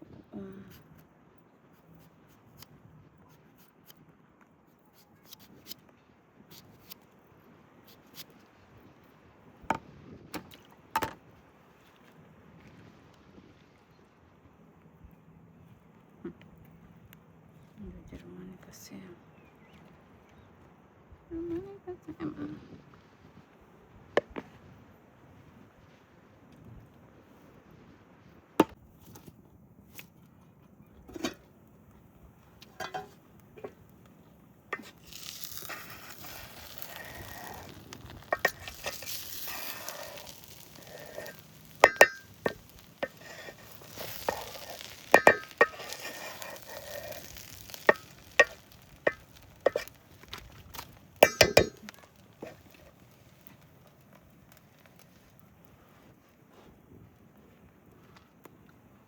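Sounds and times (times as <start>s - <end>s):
metal utensil clinking against pot: 32.7s - 33.2s, 38.2s - 49.9s, 51.2s - 52.6s
food frying hiss: 34.8s - 53.7s.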